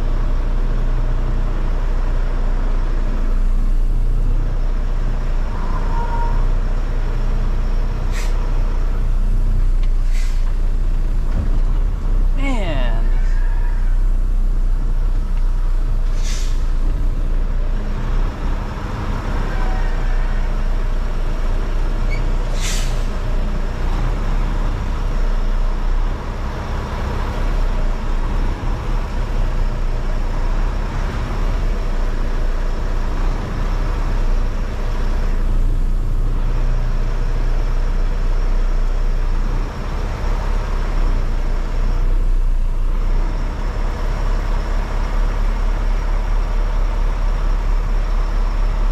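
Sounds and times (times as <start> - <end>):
diesel truck engine idling: 0.0 - 48.9
short hisses of air: 10.0 - 10.4, 16.1 - 16.6, 22.6 - 23.0.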